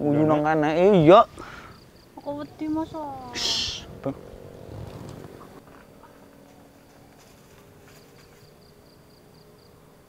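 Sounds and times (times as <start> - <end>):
footsteps rustling through undergrowth: 4.7 - 8.8.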